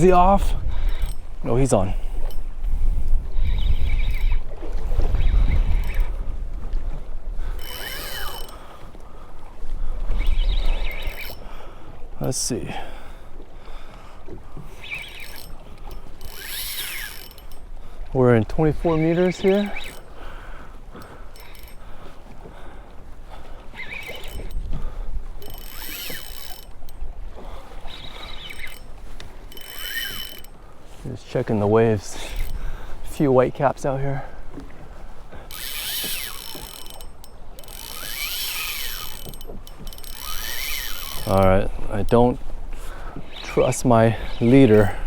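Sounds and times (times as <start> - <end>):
fishing reel winding and ratcheting: 0.0 - 6.2, 7.4 - 8.7, 10.1 - 11.5, 14.8 - 17.7, 18.5 - 20.1, 21.0 - 21.8, 23.8 - 27.0, 27.9 - 30.6, 35.5 - 42.2
wind on microphone: 0.0 - 12.0, 14.4 - 30.9, 31.5 - 33.3, 34.2 - 45.0
reel drag buzzing: 0.0 - 45.0.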